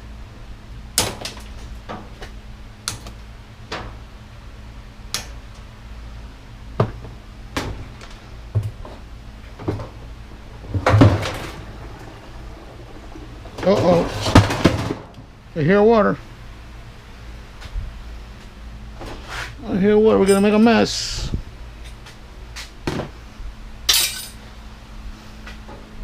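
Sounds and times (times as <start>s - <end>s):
rattling metal clatter: 8.8s - 15.4s.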